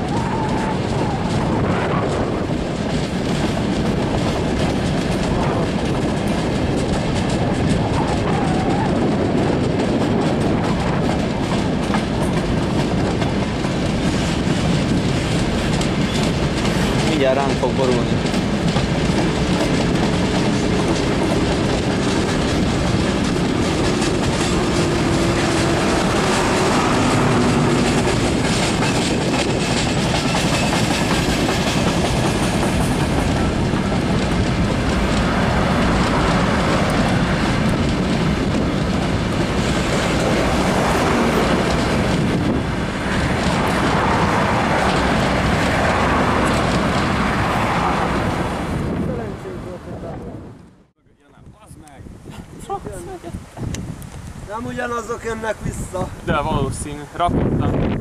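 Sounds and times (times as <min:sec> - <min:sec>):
wheels clattering over rail joints: 0:00.0 - 0:49.0
freight train rumble: 0:00.0 - 0:58.0.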